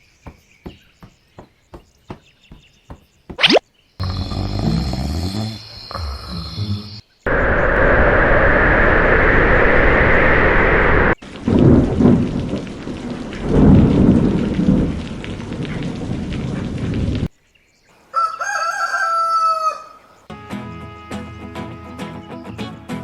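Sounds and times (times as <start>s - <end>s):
rain falling: 4.0s - 17.3s
thunder rolling: 7.3s - 17.3s
rooster crowing: 18.1s - 20.0s.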